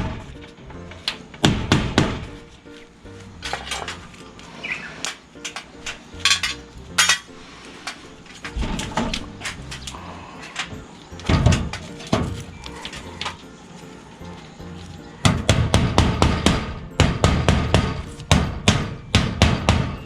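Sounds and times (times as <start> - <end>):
faint background music: 0.0 - 20.0
hammer striking sheet metal: 1.4 - 2.4, 15.3 - 20.0.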